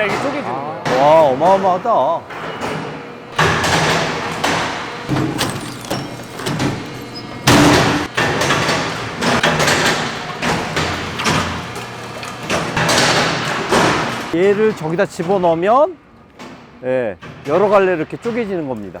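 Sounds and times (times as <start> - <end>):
log splitter machine hum: 3.4 - 14.4
wood splitting thuds and cracks: 5.1 - 8.1.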